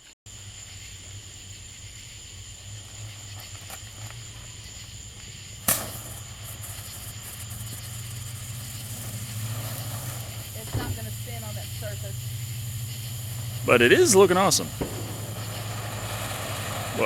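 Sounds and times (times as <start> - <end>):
firework hissing: 0.0 - 17.0
sharp pop: 5.6 - 6.2, 14.6 - 17.0.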